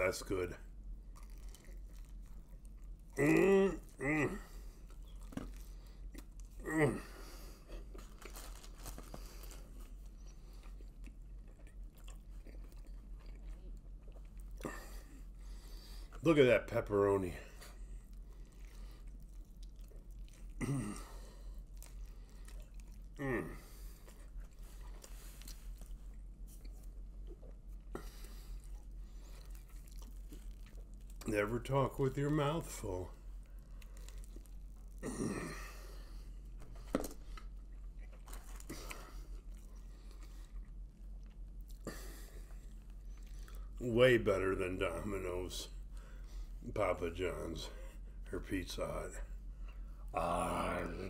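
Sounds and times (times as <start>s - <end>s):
person chewing: 0.9s - 16.2s, 17.7s - 31.3s, 33.3s - 43.8s.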